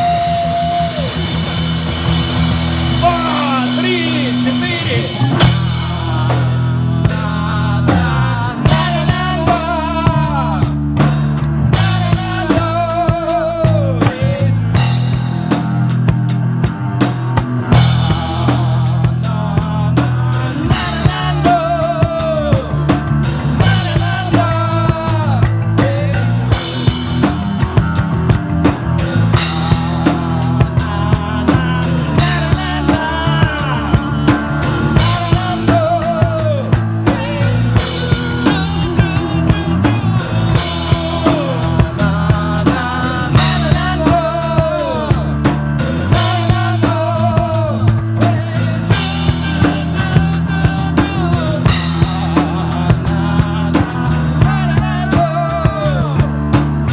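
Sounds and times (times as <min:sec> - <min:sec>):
bending lead guitar melody: 0:00.0 - 0:14.1
bass notes: 0:00.0 - 0:56.9
drum kit beat: 0:00.0 - 0:56.9.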